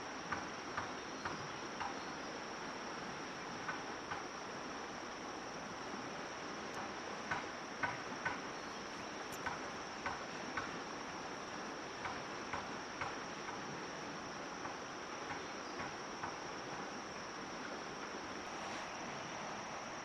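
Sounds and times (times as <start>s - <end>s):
crickets droning: 0.0s - 20.0s
light irregular knocks: 6.7s - 10.8s.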